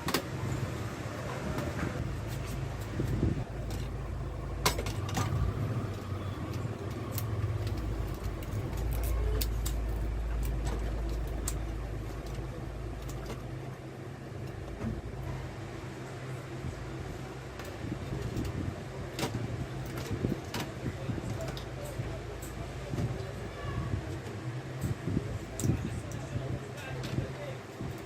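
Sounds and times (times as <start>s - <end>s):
steady low rumble: 0.0s - 28.0s
small parts clicking and tapping: 4.6s - 13.5s.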